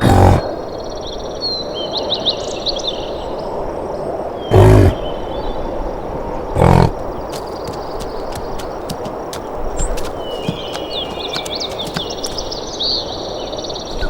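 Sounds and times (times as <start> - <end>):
big cat roaring: 0.0 - 0.5, 4.5 - 5.0, 6.6 - 9.2.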